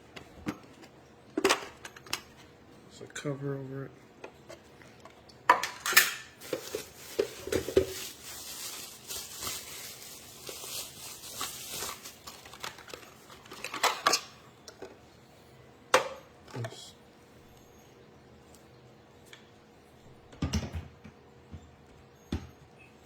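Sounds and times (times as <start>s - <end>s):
rustling: 6.4s - 14.2s.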